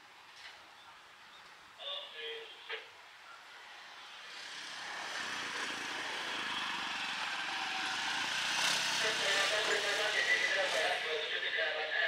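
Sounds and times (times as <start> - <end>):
freight train approaching: 3.5 - 12.0.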